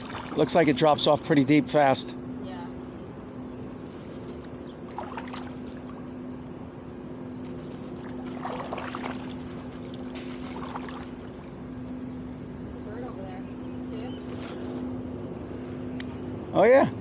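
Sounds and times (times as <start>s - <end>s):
paddles splashing in water: 0.0s - 0.6s, 4.9s - 6.0s, 7.6s - 11.6s
steady low hum: 0.0s - 17.0s.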